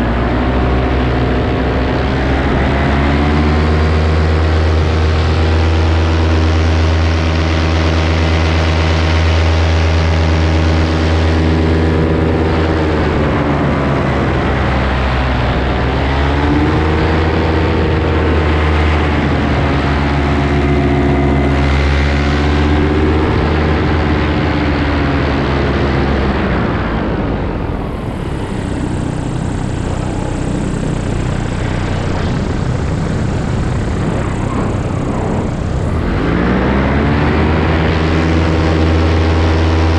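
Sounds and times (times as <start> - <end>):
paramotor engine and propeller: 0.0 - 39.9
rushing air: 0.0 - 39.9.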